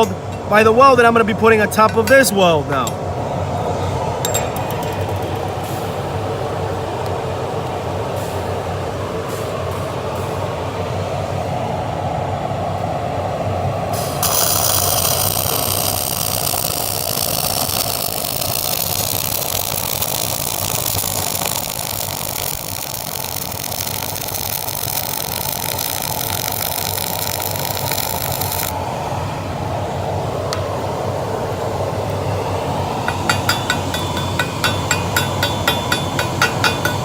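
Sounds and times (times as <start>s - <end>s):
fume extractor running: 1.7s - 37.0s
welding arc hissing: 13.9s - 28.8s, 32.1s - 37.0s.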